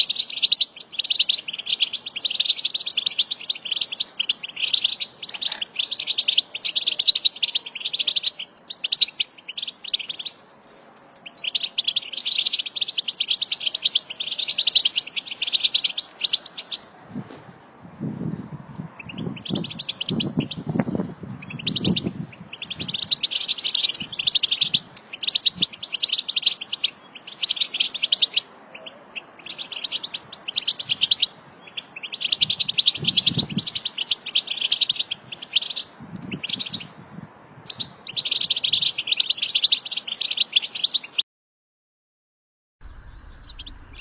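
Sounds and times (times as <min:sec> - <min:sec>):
goldfinch twittering song: 0:00.0 - 0:10.4, 0:11.2 - 0:16.9, 0:19.0 - 0:20.7, 0:21.3 - 0:37.0, 0:42.8 - 0:44.0.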